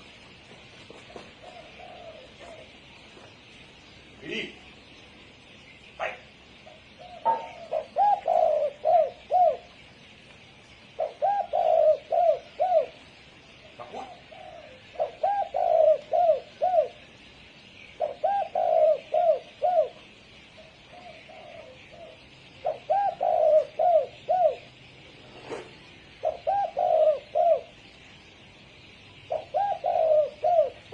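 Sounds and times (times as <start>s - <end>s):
faint steady hiss: 0.0s - 30.9s
dove cooing: 0.9s - 3.0s, 6.0s - 9.7s, 11.0s - 13.0s, 13.6s - 17.1s, 18.0s - 27.8s, 29.2s - 30.9s.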